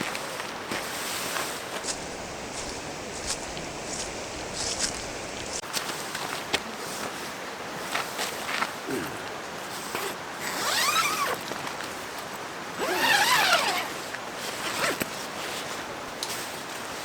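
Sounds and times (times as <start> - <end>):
steady background hiss: 0.0 - 17.0
zipper being pulled: 9.9 - 11.4, 12.8 - 14.0, 14.6 - 15.0.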